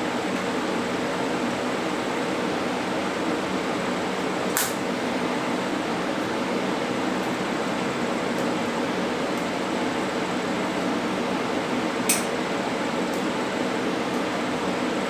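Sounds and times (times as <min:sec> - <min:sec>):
sharp click: 0:04.6 - 0:04.8.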